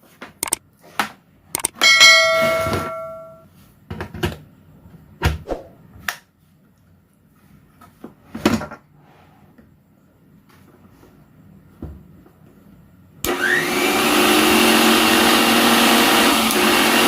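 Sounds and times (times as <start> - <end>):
knocks and clunks of handled tools: 1.6 - 4.3
struck metal ringing: 1.7 - 3.4.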